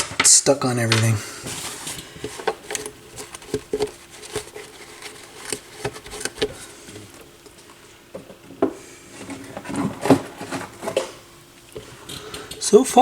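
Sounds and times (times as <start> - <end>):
light clicks taps and rubbing: 0.9 - 8.3.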